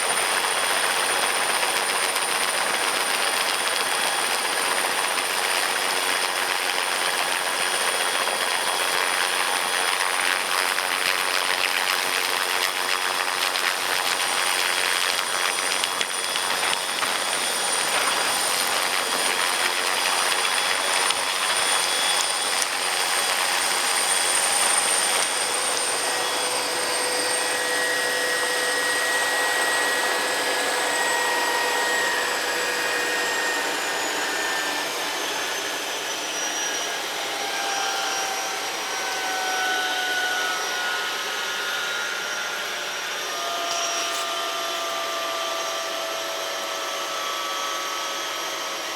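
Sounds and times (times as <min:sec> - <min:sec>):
helicopter rotor noise: 0:00.0 - 0:48.9
helicopter turbine whine: 0:00.0 - 0:48.9.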